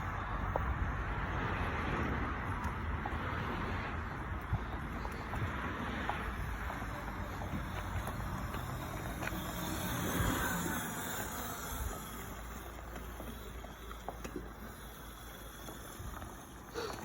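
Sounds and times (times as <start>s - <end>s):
wind rumbling on microphone: 0.0s - 13.4s
electric motorbike running: 0.0s - 17.0s.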